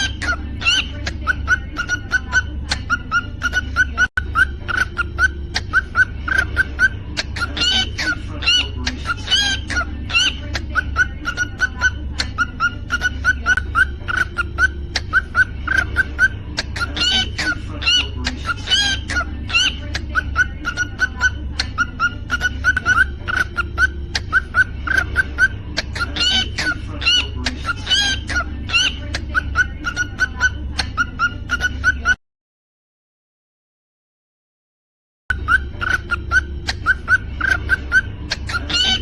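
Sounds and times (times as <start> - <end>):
cockatiel chirping: 0.0 - 32.2, 35.3 - 39.0
cockatiel whistled calls: 35.3 - 39.0.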